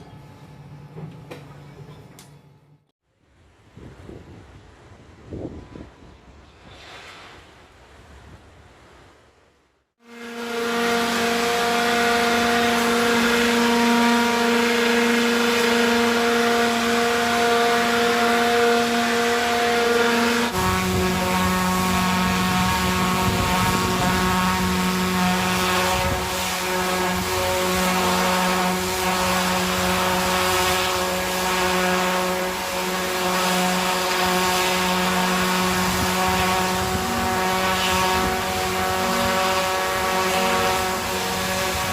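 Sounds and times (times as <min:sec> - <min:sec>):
machinery drone with hum: 0:10.0 - 0:41.9.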